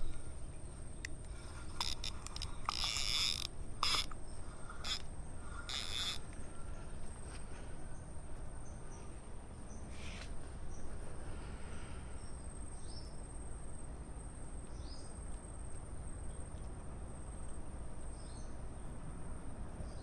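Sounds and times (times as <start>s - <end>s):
fishing reel rasping and clicking: 1.0s - 6.3s.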